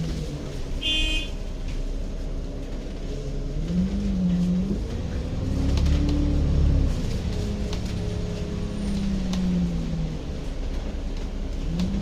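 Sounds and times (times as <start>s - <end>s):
heavy low rumble: 0.0s - 12.0s
vehicle engine revving: 3.4s - 10.4s.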